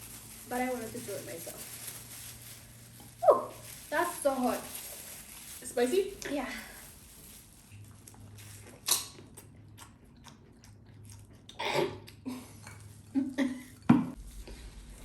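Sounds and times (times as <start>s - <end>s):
chewing and biting food: 7.7s - 13.0s.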